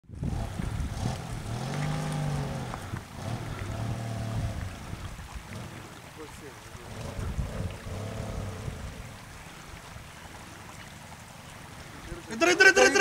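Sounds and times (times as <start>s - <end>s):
low rumble: 0.0s - 5.8s
engine revving: 0.0s - 5.9s, 6.8s - 9.1s.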